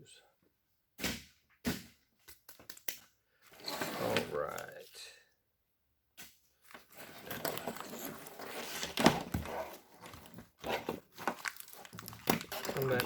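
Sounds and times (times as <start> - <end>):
plastic clicks and snaps: 2.3 - 3.1
plastic wrap rustling and crinkling: 6.6 - 13.0.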